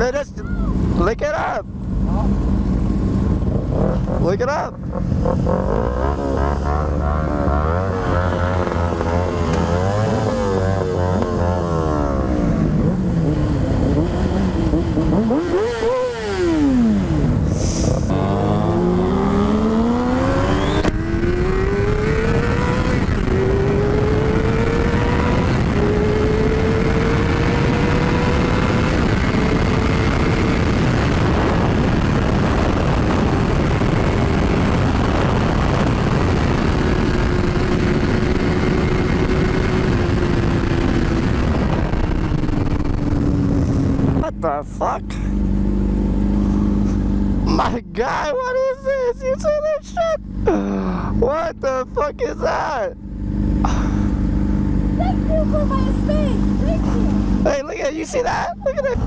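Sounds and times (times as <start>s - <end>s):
motorcycle engine revving: 0.0s - 59.0s
wind rush over microphone: 17.1s - 44.4s.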